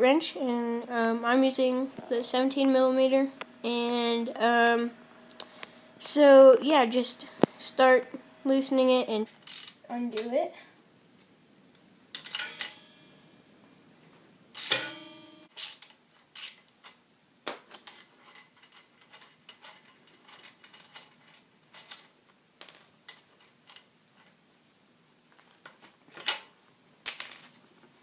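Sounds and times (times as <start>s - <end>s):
ringing metal clang: 12.4s - 13.2s, 14.6s - 15.5s.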